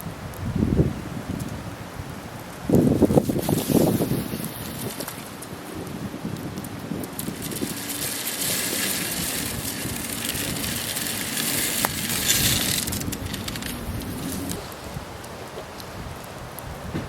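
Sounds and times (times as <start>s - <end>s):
log scraping over ground: 2.7s - 17.0s
truck engine running under load: 7.0s - 15.8s.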